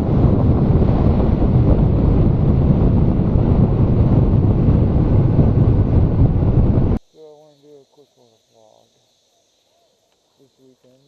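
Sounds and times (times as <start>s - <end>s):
wind rush on microphone: 0.0s - 7.0s.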